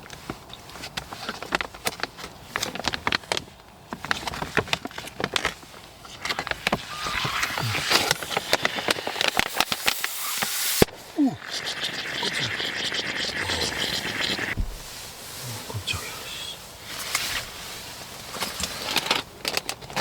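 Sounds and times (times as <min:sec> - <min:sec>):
steady hiss: 0:06.2 - 0:18.9.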